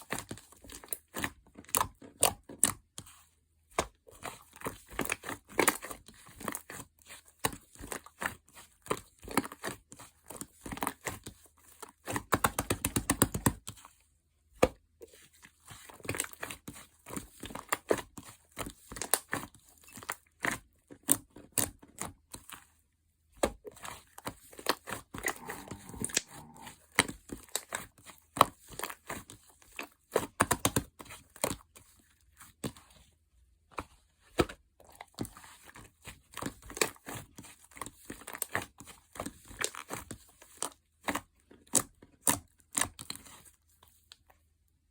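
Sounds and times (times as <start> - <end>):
slime squished by hand: 24.6 - 27.8.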